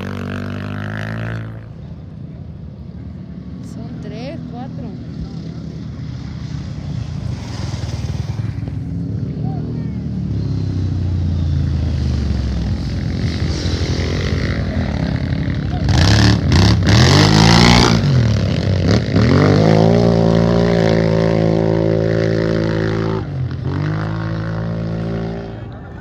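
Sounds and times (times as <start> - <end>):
race engine revving: 4.2 - 26.0.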